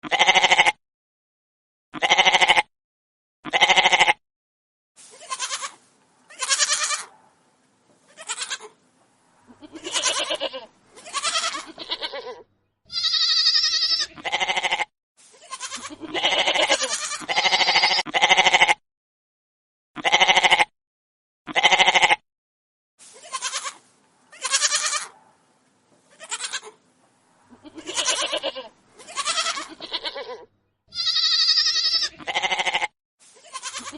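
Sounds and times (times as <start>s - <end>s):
goats bleating: 0.0s - 0.8s, 2.0s - 2.7s, 3.5s - 4.2s, 5.1s - 7.1s, 8.1s - 8.8s, 9.5s - 18.8s, 20.0s - 20.7s, 21.5s - 22.2s, 23.2s - 25.2s, 26.1s - 26.8s, 27.5s - 33.9s.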